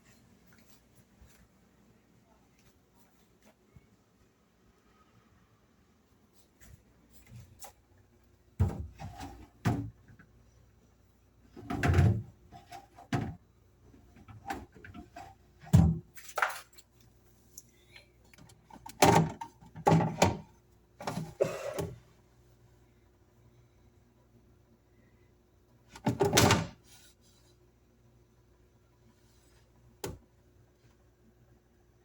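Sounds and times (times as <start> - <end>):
refrigerator shelves knocking and clattering: 8.6 - 10.3, 11.5 - 13.4, 14.0 - 16.2, 18.8 - 22.0, 26.0 - 26.8.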